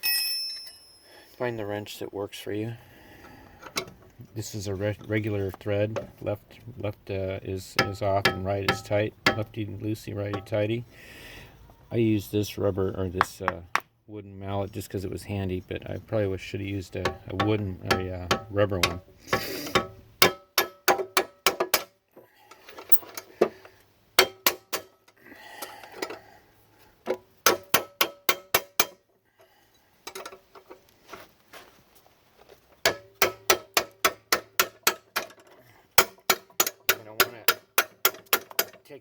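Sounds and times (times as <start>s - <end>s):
wooden mallet striking a wrench: 7.7s - 9.6s, 10.3s - 10.5s, 17.0s - 19.0s, 19.7s - 21.9s, 24.2s - 24.9s, 27.4s - 29.0s, 32.8s - 35.3s, 36.0s - 38.8s.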